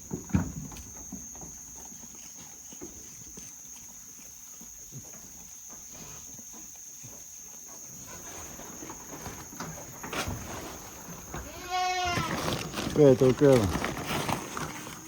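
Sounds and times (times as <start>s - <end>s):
goat bleating: 11.4s - 12.4s.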